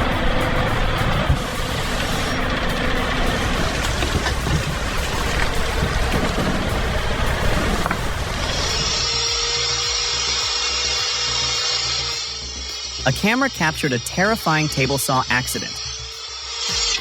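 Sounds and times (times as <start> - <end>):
heavy vehicle engine rumbling: 0.0 - 10.3
steady high whine: 0.0 - 17.0.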